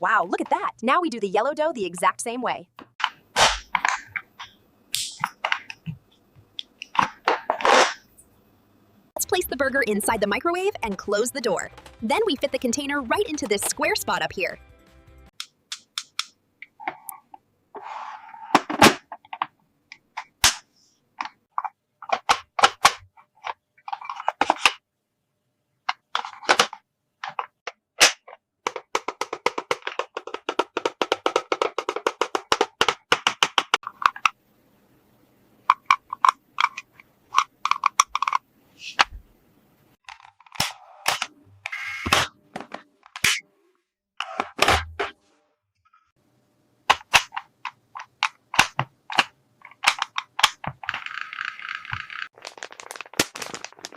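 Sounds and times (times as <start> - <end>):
plastic toy parts clicking: 15.4 - 16.4, 25.9 - 34.4, 35.7 - 38.4, 46.9 - 53.9.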